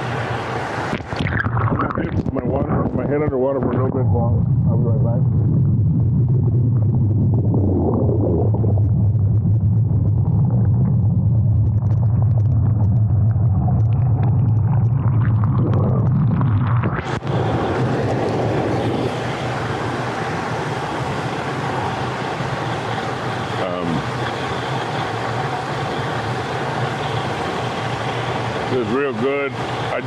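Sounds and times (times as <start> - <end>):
muffled underwater churning rumble: 0.0 - 30.0
bubbling water hiss: 10.0 - 30.0.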